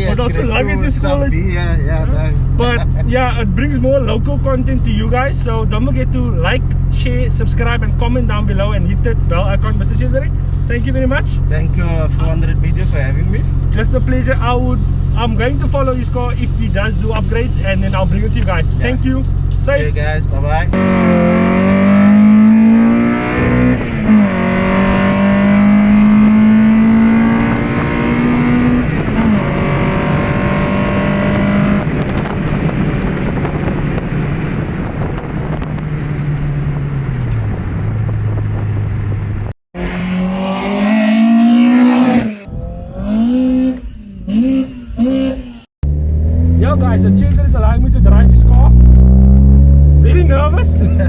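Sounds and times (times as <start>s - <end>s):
car engine accelerating and revving: 20.6s - 51.0s.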